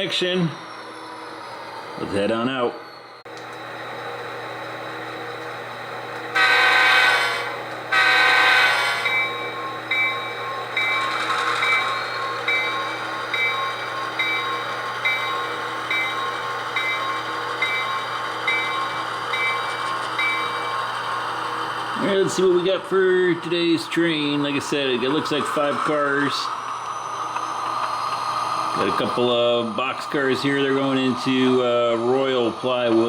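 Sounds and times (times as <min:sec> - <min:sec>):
diesel engine running: 0:00.0 - 0:33.0
train horn blasts: 0:06.3 - 0:09.3
locomotive bell ringing: 0:06.3 - 0:26.4.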